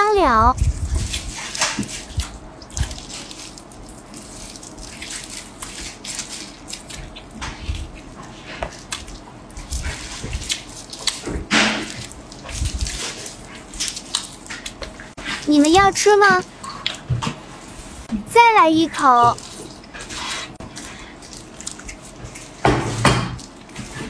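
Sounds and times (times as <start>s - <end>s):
wet chewing and smacking: 0.6s - 17.7s, 19.1s - 24.0s.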